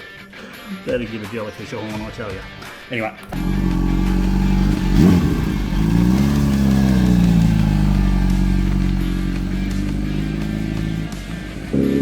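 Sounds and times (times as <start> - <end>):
motorcycle engine idling: 3.3 - 11.8.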